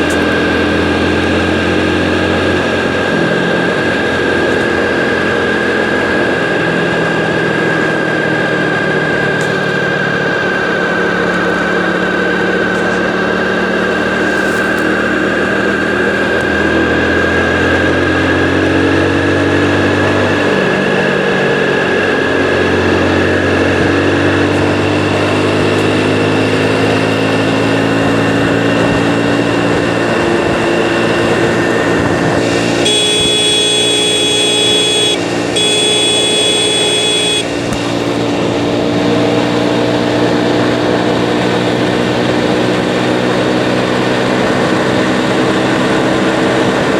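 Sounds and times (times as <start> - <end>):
motorcycle engine running: 0.0 - 8.0, 22.8 - 38.5
motorcycle horn blasts: 32.4 - 38.1.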